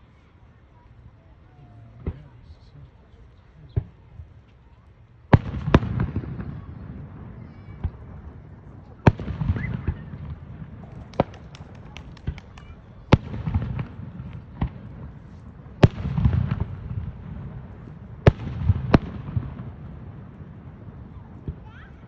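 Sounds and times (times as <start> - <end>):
fireworks bangs: 5.3 - 22.0
small crackling pops: 10.9 - 13.3.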